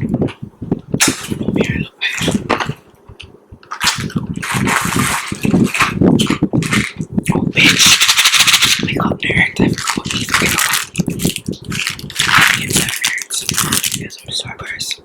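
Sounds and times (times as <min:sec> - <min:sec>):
ice cubes clattering: 0:03.7 - 0:07.0, 0:07.6 - 0:08.9, 0:09.7 - 0:14.1.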